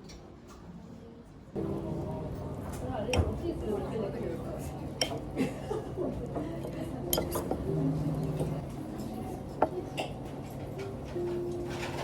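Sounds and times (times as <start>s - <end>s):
dishes and cutlery clinking: 7.1s - 12.0s.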